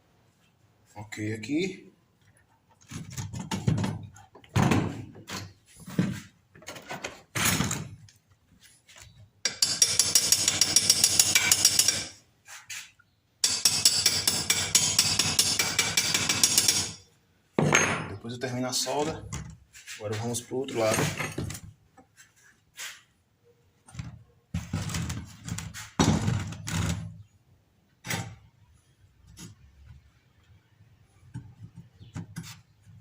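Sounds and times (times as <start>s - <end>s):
metal clanks and knocks: 2.8s - 7.9s, 17.6s - 18.2s, 20.8s - 21.7s.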